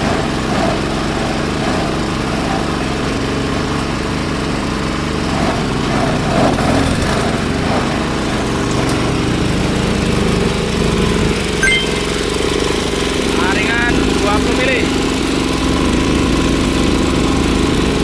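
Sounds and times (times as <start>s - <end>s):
diesel engine running under load: 0.0s - 11.5s, 12.3s - 18.0s.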